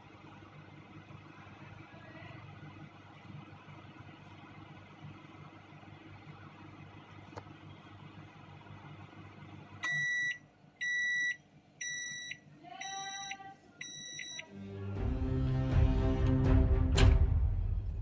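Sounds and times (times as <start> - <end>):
microwave oven humming: 0.0 - 18.0
electronic beeps: 9.8 - 14.5
music: 14.4 - 18.0.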